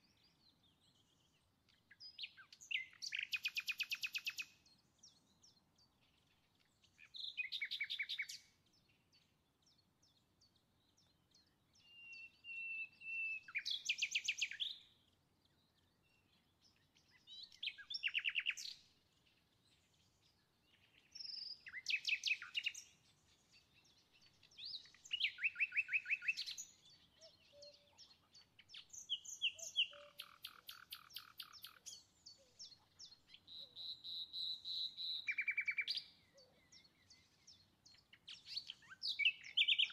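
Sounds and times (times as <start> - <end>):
songbird trilling: 1.9 - 4.5, 7.0 - 8.4, 11.8 - 14.8, 17.1 - 18.8, 21.0 - 22.9, 23.8 - 39.9.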